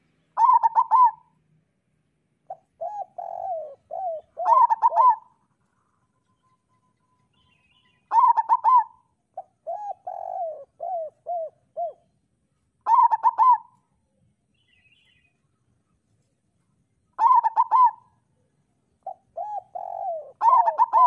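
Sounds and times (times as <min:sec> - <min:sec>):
dove cooing: 0:00.4 - 0:01.3, 0:02.5 - 0:05.4, 0:08.1 - 0:12.1, 0:12.8 - 0:13.8, 0:17.2 - 0:18.2, 0:19.0 - 0:21.0.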